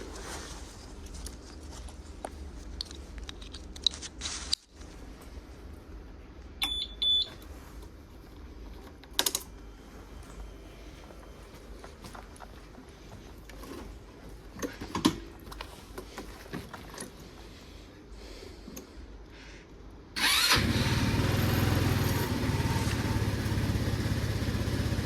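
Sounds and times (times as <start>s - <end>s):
scooter engine low rumble: 20.2s - 25.0s.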